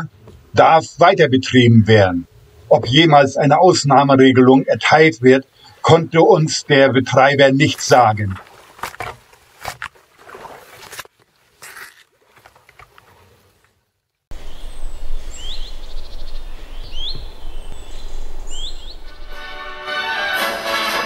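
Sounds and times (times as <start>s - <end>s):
bird chirping: 14.3s - 19.8s
steady low rumble: 14.3s - 19.9s.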